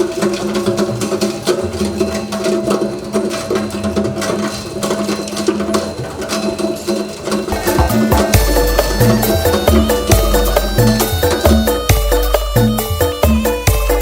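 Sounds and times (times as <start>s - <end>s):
ice crusher motor humming: 7.5s - 14.0s
music playing: 7.5s - 14.0s.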